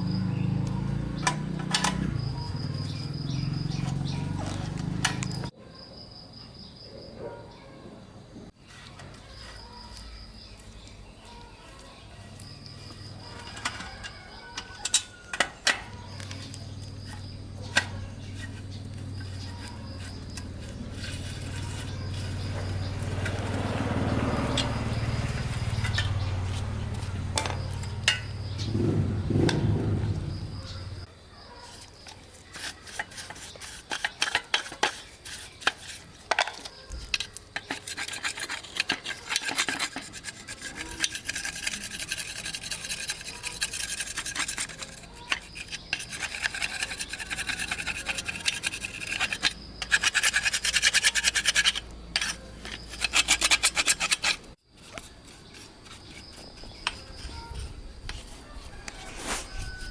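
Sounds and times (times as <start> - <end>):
hand tool rasping on metal: 13.0 - 31.0, 31.7 - 59.9.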